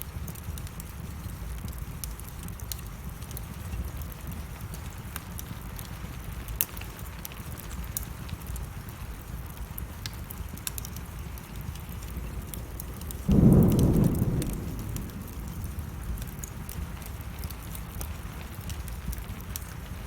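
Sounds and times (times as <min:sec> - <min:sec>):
rain falling: 0:00.0 - 0:20.0
wood fire crackling: 0:00.0 - 0:20.0
thunder clap: 0:11.7 - 0:19.4.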